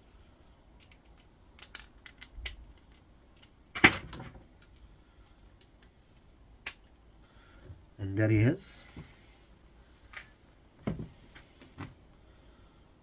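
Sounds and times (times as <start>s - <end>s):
metal parts clicking and clinking: 0.8s - 4.8s.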